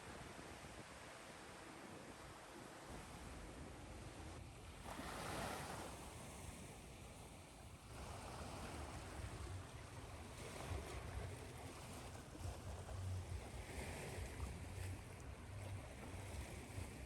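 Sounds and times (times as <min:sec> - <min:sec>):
ocean waves washing onto shore: 0:04.5 - 0:17.0.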